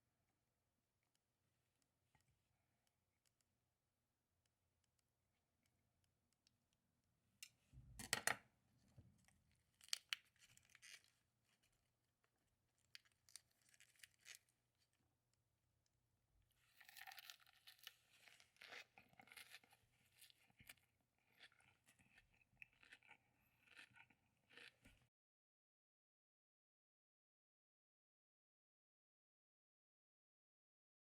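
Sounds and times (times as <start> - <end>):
food tearing and crunching: 16.6 - 25.1.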